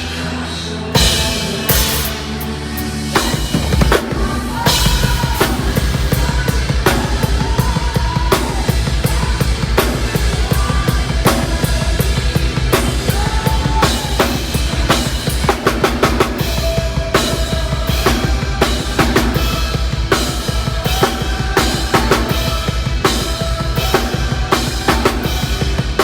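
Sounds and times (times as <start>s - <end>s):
metal band playing live: 0.0s - 26.0s
snare and cymbal hits: 1.0s - 7.7s
fast bass drum pulse: 3.2s - 26.0s.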